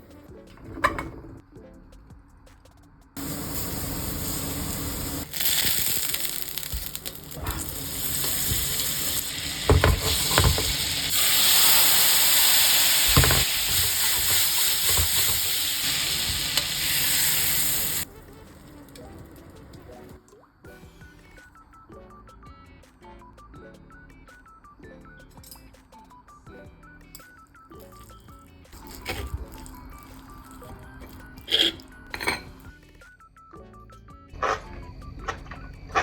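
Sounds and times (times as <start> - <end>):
mushrooms sizzling in a frying pan: 3.2 - 18.1.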